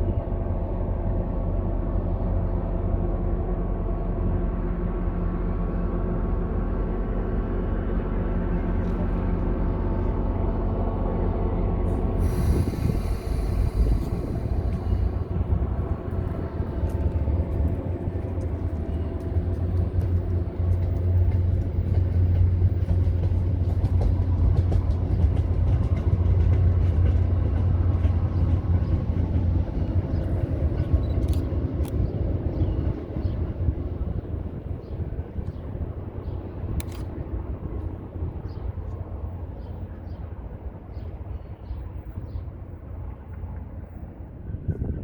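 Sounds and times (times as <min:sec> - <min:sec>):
diesel locomotive engine humming: 0:00.0 - 0:45.0
train cars rumbling: 0:00.0 - 0:45.0
air hiss: 0:12.2 - 0:15.2.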